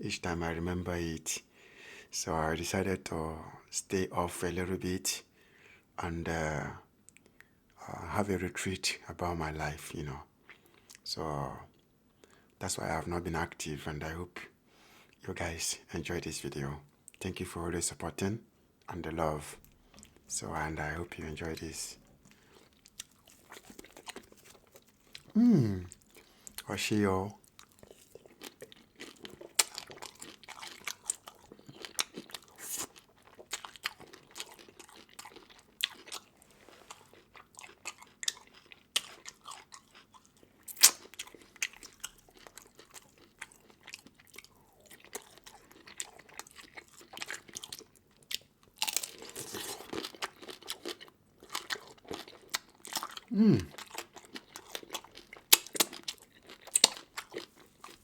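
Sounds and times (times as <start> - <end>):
person chewing crunchy seafood: 21.4 - 58.0.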